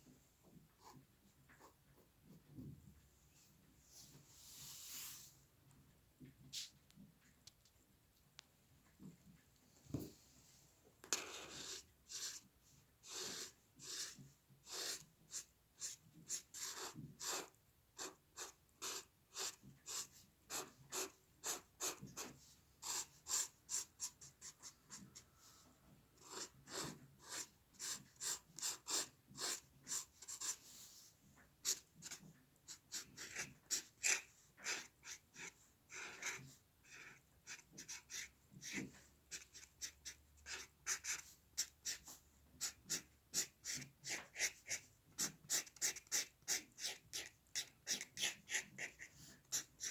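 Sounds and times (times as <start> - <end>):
pencil scratching on paper: 11.1 - 25.6, 26.2 - 49.9.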